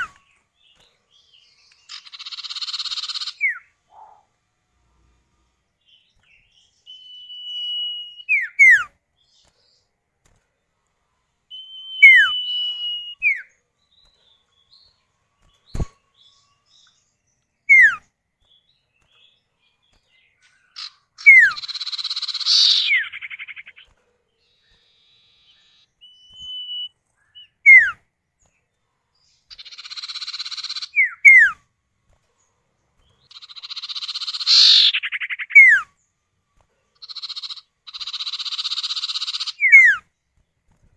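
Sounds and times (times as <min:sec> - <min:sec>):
harsh rasping bird chatter: 0:00.0 - 0:04.3, 0:19.1 - 0:27.5, 0:29.4 - 0:31.5, 0:33.0 - 0:35.9, 0:36.9 - 0:40.0
bird whistles: 0:06.8 - 0:08.9, 0:11.5 - 0:13.5, 0:17.7 - 0:18.1, 0:20.8 - 0:23.8, 0:24.9 - 0:28.0, 0:29.6 - 0:31.6, 0:33.3 - 0:35.9, 0:37.0 - 0:40.0.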